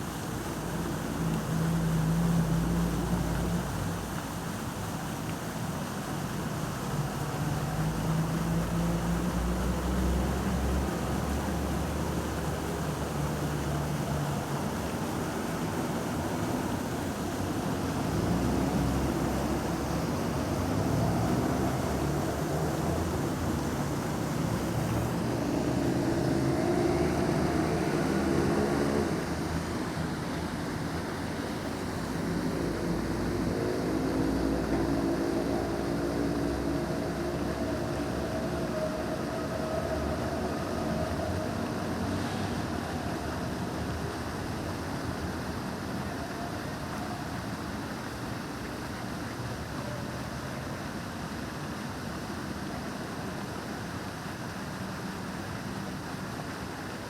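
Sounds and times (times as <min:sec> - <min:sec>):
fountain water: 0:00.0 - 0:57.0
vehicle engines humming: 0:06.8 - 0:48.4
low engine drone: 0:16.0 - 0:45.6.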